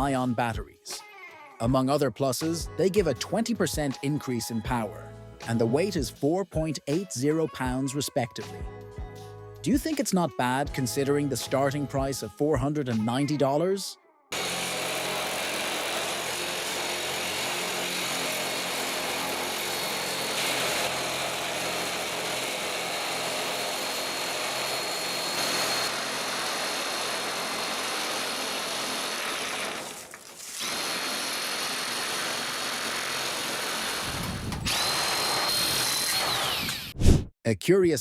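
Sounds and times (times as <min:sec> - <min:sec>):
power tool motor whining: 0:14.3 - 0:37.0.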